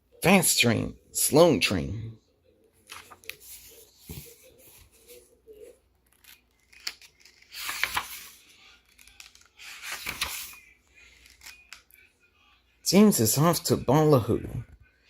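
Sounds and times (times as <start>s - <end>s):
paper rustling: 2.8s - 11.9s.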